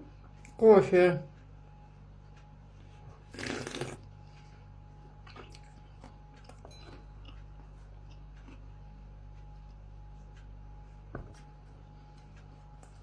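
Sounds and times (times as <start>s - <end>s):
steady low hum: 0.0s - 13.0s
faint chewing: 3.2s - 10.8s.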